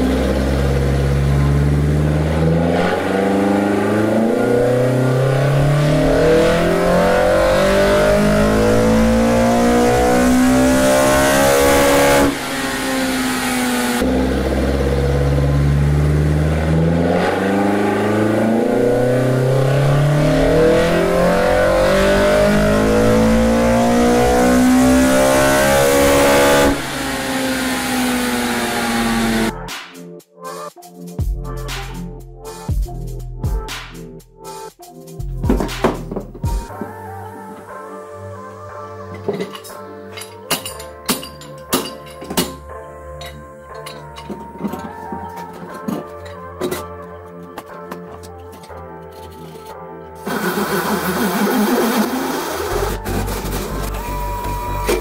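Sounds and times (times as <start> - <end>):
engine revving at full throttle: 0.0 - 29.6, 50.2 - 55.0.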